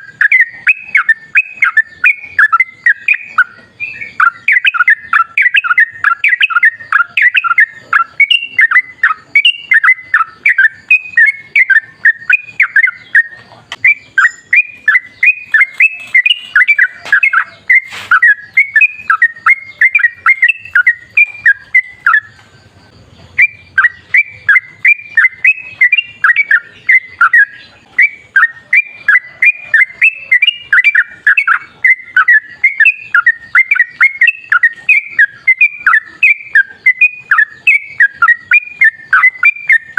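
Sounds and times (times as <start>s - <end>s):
bulbul singing warbling notes: 0.0s - 39.9s.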